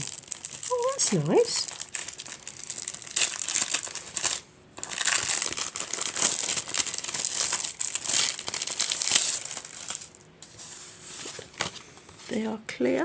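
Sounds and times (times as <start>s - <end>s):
packaging crinkling: 0.0s - 12.3s.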